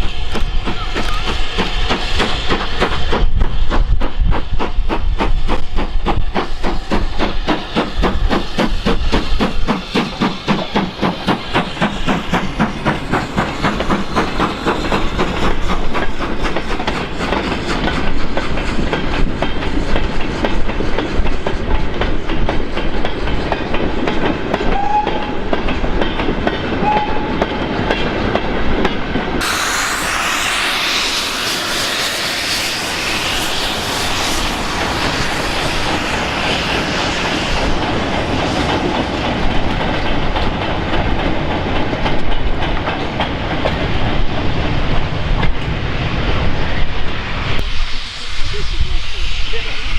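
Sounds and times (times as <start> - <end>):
steam train passing: 0.0 - 49.9
steady rushing noise: 27.6 - 49.9.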